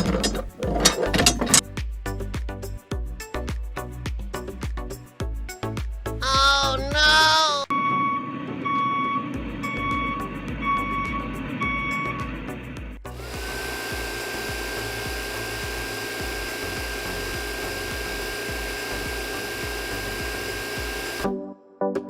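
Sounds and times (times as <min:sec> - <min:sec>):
electronic beeps: 0:07.7 - 0:12.6
small electric motor whirring: 0:13.1 - 0:21.3.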